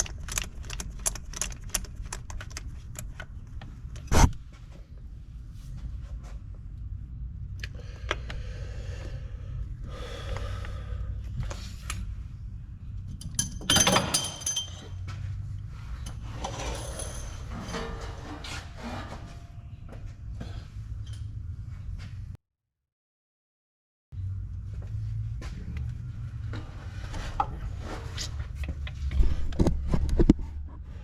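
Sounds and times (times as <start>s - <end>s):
low steady hum: 0.0s - 22.4s
metal tools clinking and rattling: 13.1s - 15.1s, 16.0s - 19.5s
ringing metallic clatter: 13.2s - 15.1s.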